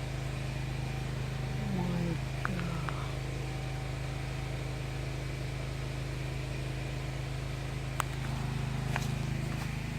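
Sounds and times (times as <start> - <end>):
low hum: 0.0 - 9.9.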